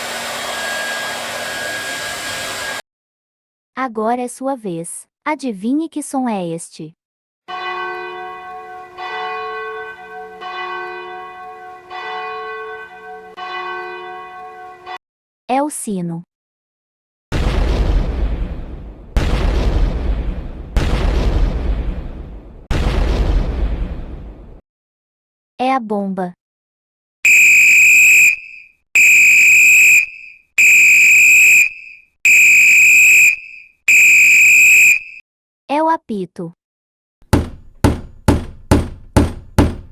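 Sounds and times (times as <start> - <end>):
whistle long blasts: 27.3 - 35.2.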